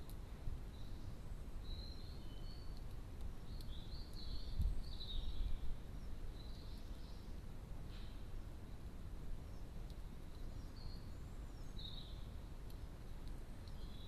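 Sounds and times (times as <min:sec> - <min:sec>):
songbird twittering: 0:00.7 - 0:07.3, 0:10.3 - 0:12.4, 0:13.6 - 0:14.0.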